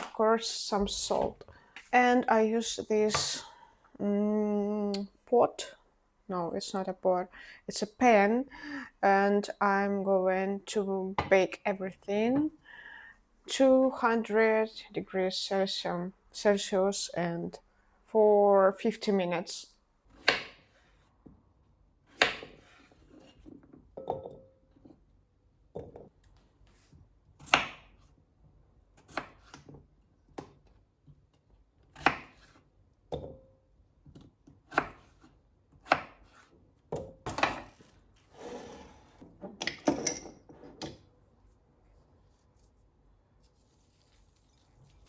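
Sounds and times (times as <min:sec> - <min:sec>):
scraping in kitchen: 0:37.6 - 0:39.3.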